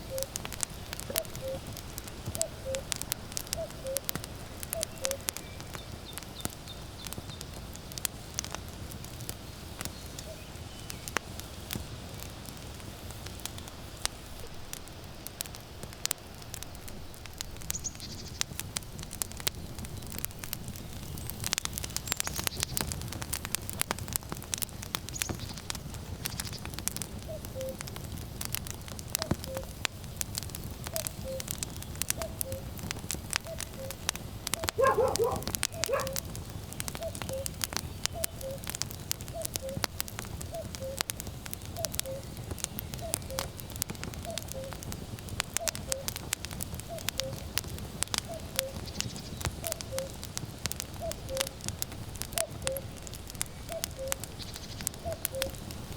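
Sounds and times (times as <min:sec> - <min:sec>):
cuckoo calling: 0:00.0 - 0:00.4, 0:01.1 - 0:01.7, 0:02.4 - 0:04.1, 0:04.7 - 0:05.4, 0:27.3 - 0:27.8, 0:29.2 - 0:29.7, 0:30.9 - 0:31.5, 0:32.2 - 0:32.7, 0:33.4 - 0:34.0, 0:34.6 - 0:36.2, 0:37.0 - 0:37.6, 0:38.2 - 0:38.6, 0:39.3 - 0:39.9, 0:41.8 - 0:42.3, 0:43.0 - 0:43.5, 0:44.2 - 0:44.8, 0:45.6 - 0:46.1, 0:46.8 - 0:47.5, 0:48.2 - 0:48.8, 0:49.6 - 0:50.2, 0:51.0 - 0:51.6, 0:52.4 - 0:52.9, 0:53.7 - 0:54.2, 0:55.0 - 0:55.6
firewood crackling and snapping: 0:00.0 - 0:55.9
low rumble of wind: 0:00.0 - 0:55.9
dog barking: 0:34.7 - 0:36.2.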